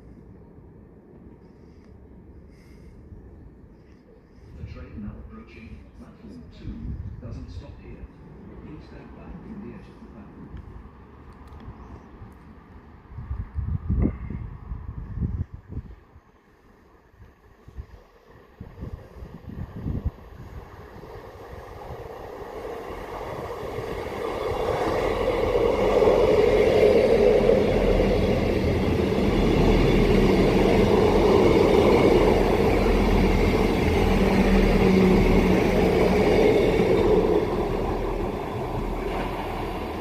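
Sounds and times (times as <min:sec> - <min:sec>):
electric train passing: 0:04.4 - 0:11.5, 0:12.1 - 0:40.0.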